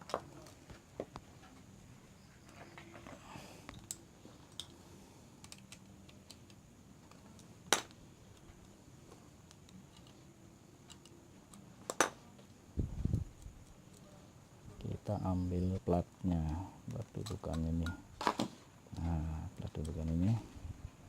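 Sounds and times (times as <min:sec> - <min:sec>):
metal parts clicking and tapping: 0:16.9 - 0:18.0.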